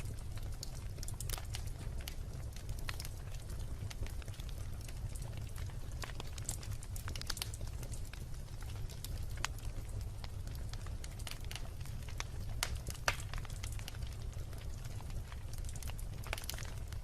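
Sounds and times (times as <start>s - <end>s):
fire crackling and popping: 0.0s - 17.0s
wood bonfire burning: 0.0s - 17.0s.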